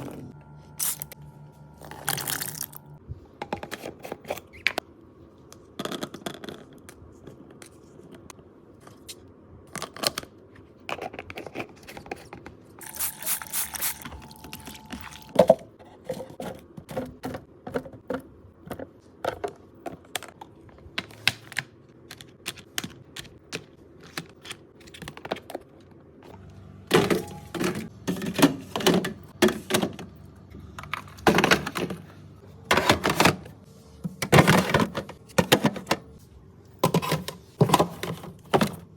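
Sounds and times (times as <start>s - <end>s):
containers knocking and clicking: 14.6s - 21.1s.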